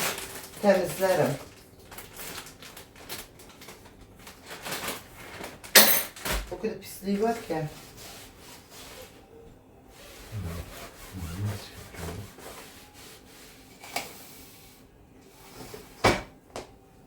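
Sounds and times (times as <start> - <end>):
hand rubbing and scraping: 10.0 - 13.4.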